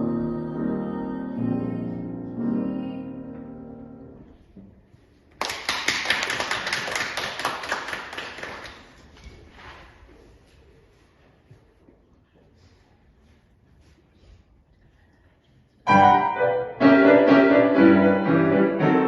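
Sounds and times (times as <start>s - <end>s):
piano chords ringing: 0.0s - 4.3s, 15.9s - 19.0s
audience applause: 5.4s - 9.0s.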